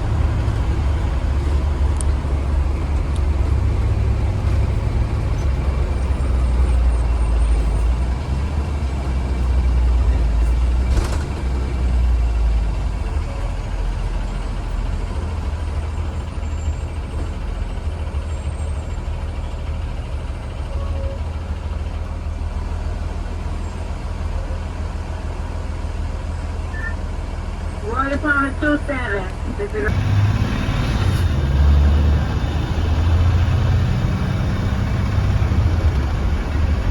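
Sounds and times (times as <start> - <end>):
bus engine and road rumble: 0.0 - 36.9.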